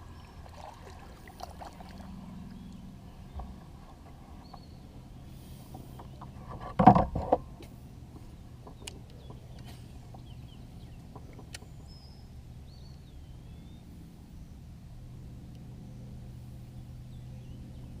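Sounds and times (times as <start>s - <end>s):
low steady hum: 0.0s - 18.0s
clatter of knocks: 6.0s - 7.4s.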